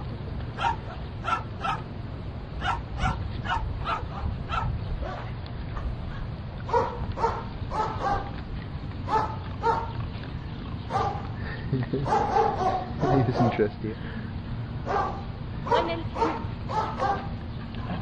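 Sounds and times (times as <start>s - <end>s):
dog barking: 0.6s - 1.8s, 2.6s - 5.3s, 6.7s - 8.3s, 9.1s - 10.0s, 10.9s - 11.3s, 12.0s - 13.6s, 14.8s - 17.3s.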